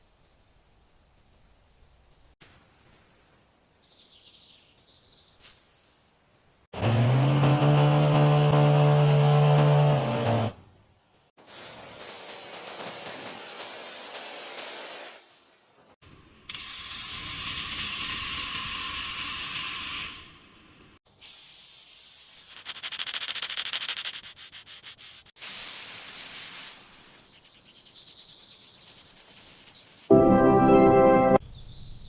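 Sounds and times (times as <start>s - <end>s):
sanding car bodywork: 6.8s - 10.5s, 11.5s - 15.2s, 22.5s - 25.3s, 27.3s - 30.1s
music: 30.1s - 31.4s.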